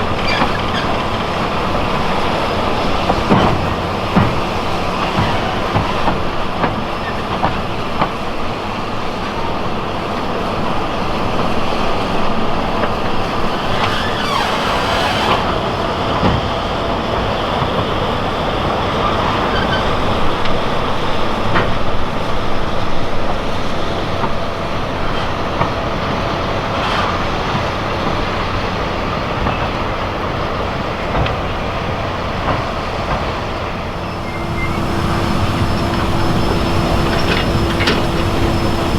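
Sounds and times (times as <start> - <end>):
steam train rumbling: 0.0 - 38.9
wheels clicking on rails: 0.0 - 38.9.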